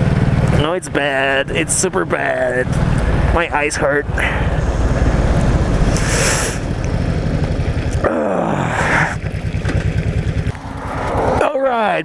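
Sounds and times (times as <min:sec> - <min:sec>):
motorcycle engine running: 0:00.0 - 0:12.0
falling tone: 0:02.4 - 0:08.8.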